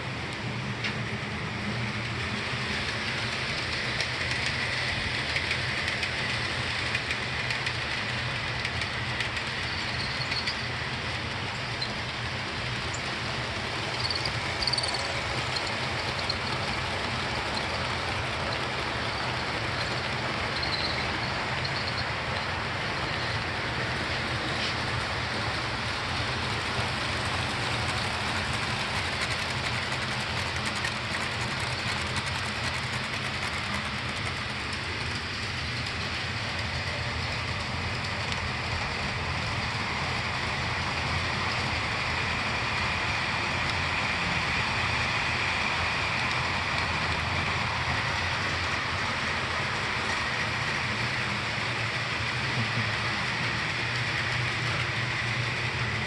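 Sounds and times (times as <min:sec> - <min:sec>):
model train rolling rattle: 0:00.0 - 0:56.0.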